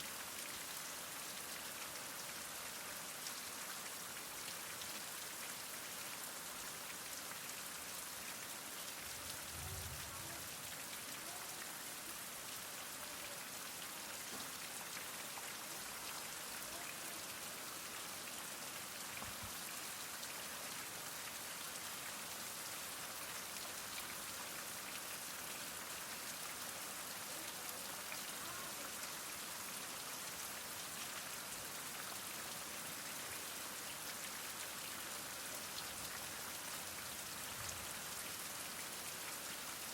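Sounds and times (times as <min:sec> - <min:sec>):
heavy rain falling: 0:08.8 - 0:14.9.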